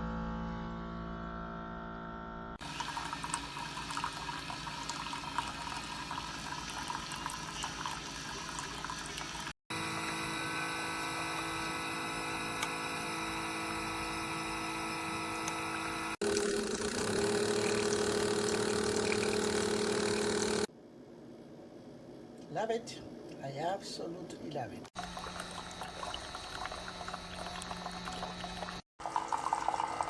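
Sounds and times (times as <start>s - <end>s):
hot water pouring: 2.6s - 9.6s, 16.2s - 20.7s, 25.0s - 30.0s
coffee maker pump humming: 2.6s - 20.7s, 24.9s - 30.0s.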